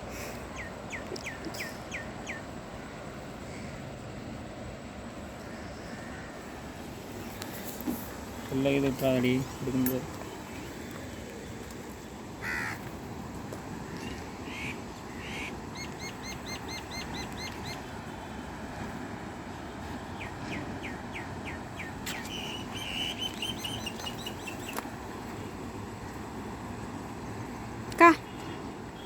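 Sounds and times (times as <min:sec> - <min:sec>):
low background noise: 0:00.0 - 0:29.0
small birds chirping: 0:00.2 - 0:02.6, 0:13.9 - 0:18.2, 0:20.0 - 0:25.5
crow cawing: 0:12.4 - 0:12.9.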